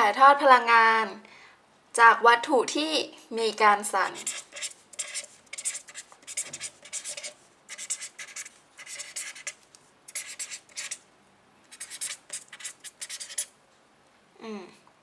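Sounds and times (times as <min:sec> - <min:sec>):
pen scratching on paper: 0:04.1 - 0:11.0, 0:11.7 - 0:13.5.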